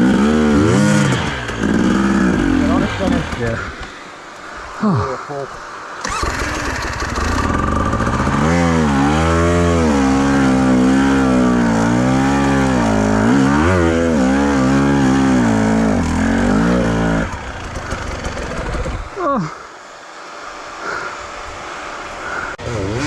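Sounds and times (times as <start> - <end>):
motorcycle engine revving: 0.0 - 3.8, 6.0 - 19.2, 22.6 - 23.0.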